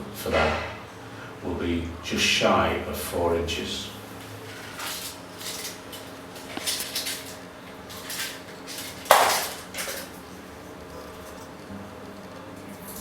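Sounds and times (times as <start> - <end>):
metal tools clinking: 4.4 - 10.2, 10.9 - 11.7
metal tools clattering: 4.4 - 11.7.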